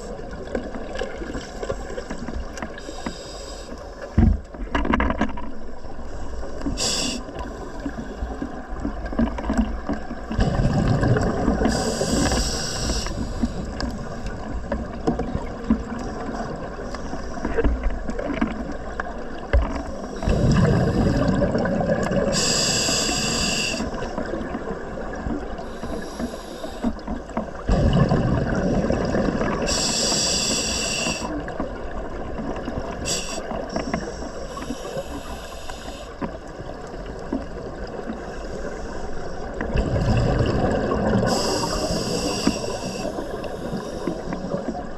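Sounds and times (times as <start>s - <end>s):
regulator inhalation hiss: 2.8s - 3.8s, 6.7s - 7.4s, 11.7s - 13.7s, 22.3s - 24.1s, 25.7s - 26.9s, 29.7s - 31.4s, 33.1s - 36.2s, 41.2s - 44.5s
exhaled bubbles gushing: 6.8s - 16.9s, 18.0s - 25.8s, 27.5s - 33.9s, 39.4s - 44.9s.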